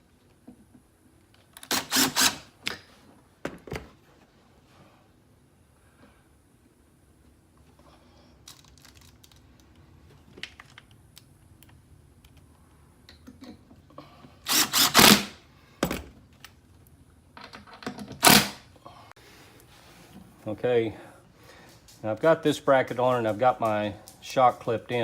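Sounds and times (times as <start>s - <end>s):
power drill driving screw: 1.6s - 2.5s, 14.4s - 15.4s, 18.2s - 18.6s
hardware clicks and taps: 22.8s - 25.0s.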